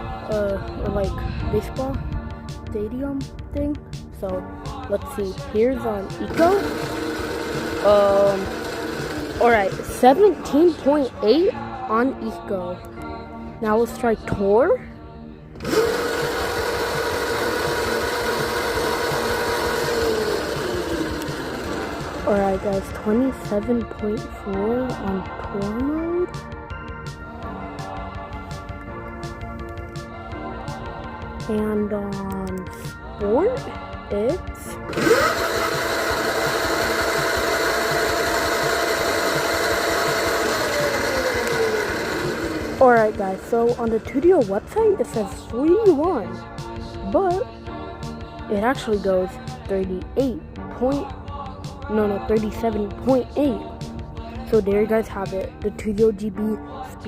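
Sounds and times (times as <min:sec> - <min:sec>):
electric motor whining: 0:06.0 - 0:11.6, 0:15.5 - 0:25.5, 0:34.7 - 0:45.9.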